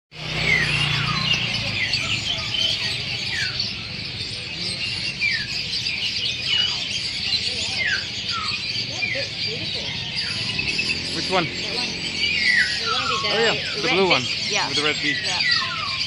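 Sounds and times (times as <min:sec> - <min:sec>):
small birds chirping and twittering: 0:00.1 - 0:16.0.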